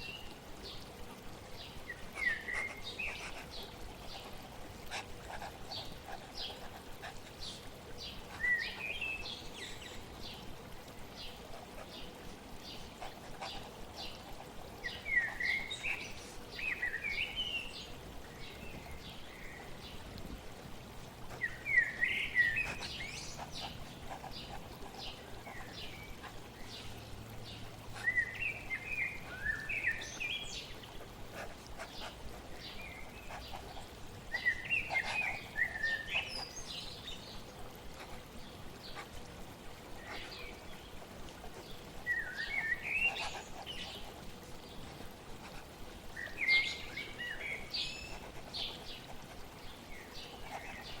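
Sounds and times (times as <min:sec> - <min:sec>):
flowing water hiss: 0:00.0 - 0:51.0
songbird warbling: 0:41.6 - 0:44.1, 0:46.1 - 0:49.0.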